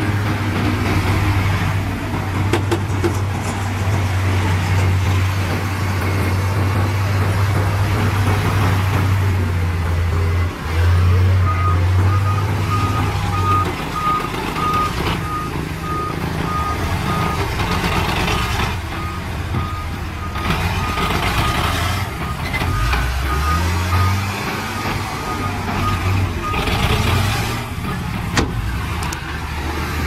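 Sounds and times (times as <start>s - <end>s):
diesel engine humming: 0.0s - 30.0s
reversing alarm beeping: 11.4s - 27.2s.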